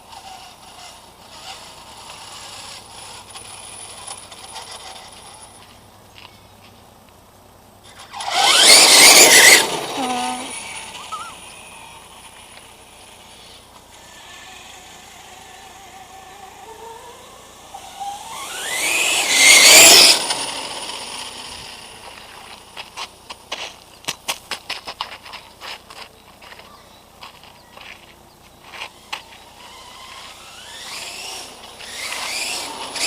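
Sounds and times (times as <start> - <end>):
electric motor whining: 0.0 - 5.6, 7.8 - 23.0, 28.7 - 33.0.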